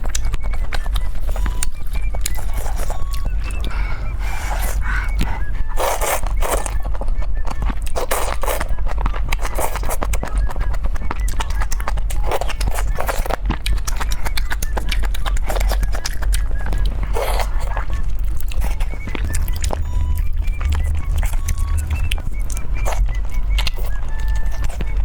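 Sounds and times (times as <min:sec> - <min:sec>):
person chewing food: 0:00.0 - 0:25.0.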